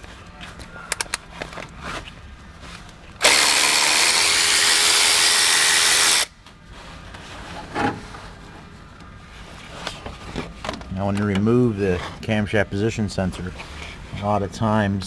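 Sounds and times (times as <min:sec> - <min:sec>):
light metal clicks: 0:00.9 - 0:01.2
power driver running: 0:03.2 - 0:06.3.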